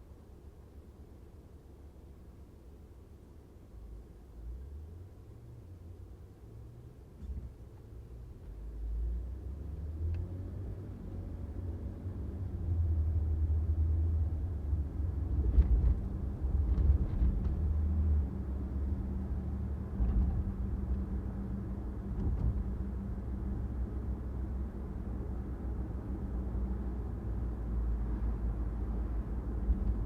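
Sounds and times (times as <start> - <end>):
car engine rumble: 0.0 - 30.0
tyre road noise: 9.6 - 30.0.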